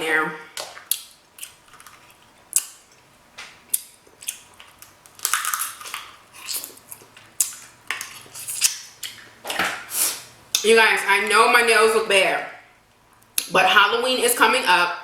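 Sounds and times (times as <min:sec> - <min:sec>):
crab shells cracking: 0:00.6 - 0:09.3.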